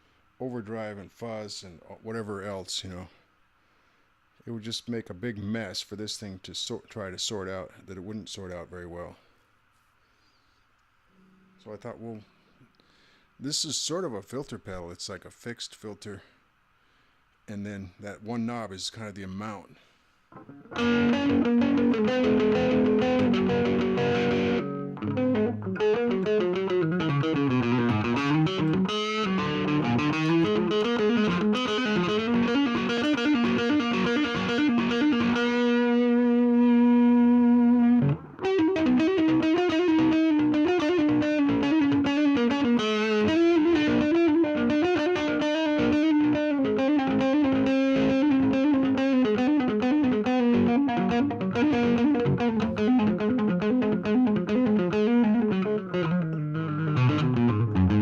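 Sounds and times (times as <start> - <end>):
distorted electric guitar lead: 20.3 - 58.0.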